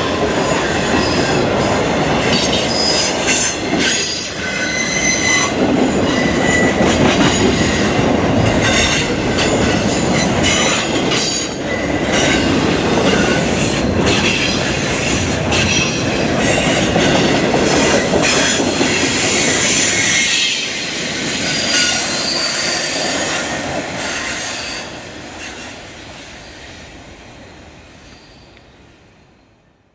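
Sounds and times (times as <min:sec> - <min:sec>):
train wheel and rail noise: 0:00.0 - 0:29.9
steel wheel squeal: 0:02.3 - 0:07.9, 0:21.4 - 0:25.8.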